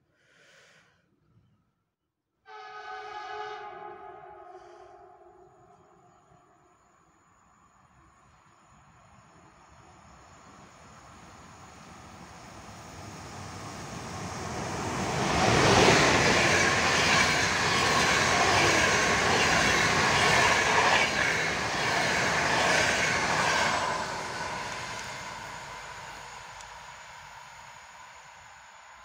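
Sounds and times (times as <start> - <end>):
train passing by: 2.5 - 29.0.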